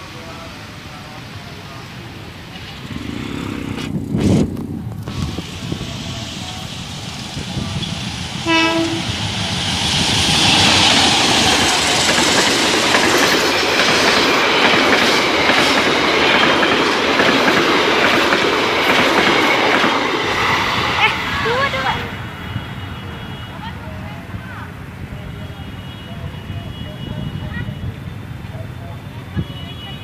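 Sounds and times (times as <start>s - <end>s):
train wheels rumbling on rails: 0.0s - 23.0s
train horn blast: 7.8s - 9.2s, 21.6s - 23.8s.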